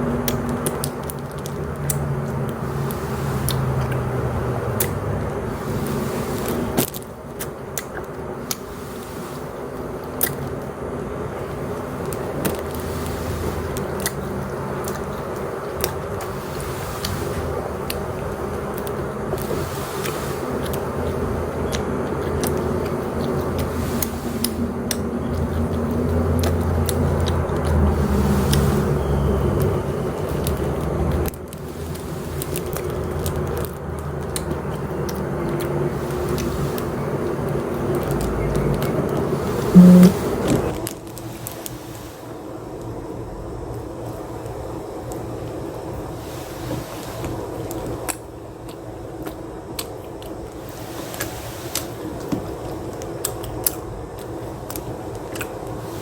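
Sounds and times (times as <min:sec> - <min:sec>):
wet mouth clicks: 0:04.7 - 0:05.0, 0:39.7 - 0:40.2
person chewing food: 0:11.8 - 0:17.2.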